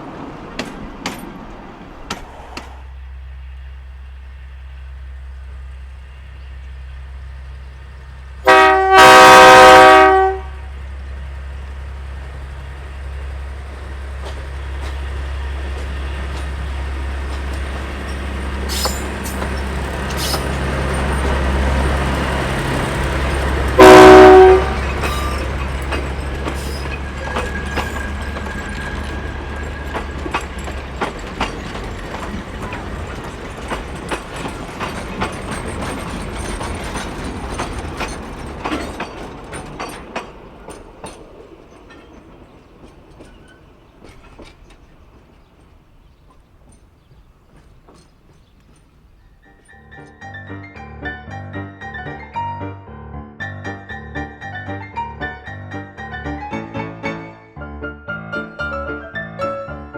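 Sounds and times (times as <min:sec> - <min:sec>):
diesel engine drone: 0:02.6 - 0:08.9
locomotive horn blasts: 0:08.4 - 0:10.7, 0:23.7 - 0:25.6
wheels clicking over rail: 0:13.7 - 0:50.2.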